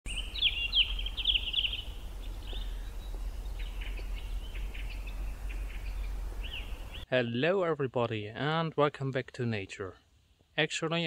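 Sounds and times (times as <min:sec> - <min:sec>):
songbirds chirping trills: 0:00.1 - 0:07.6
steady low rumble: 0:00.3 - 0:07.0.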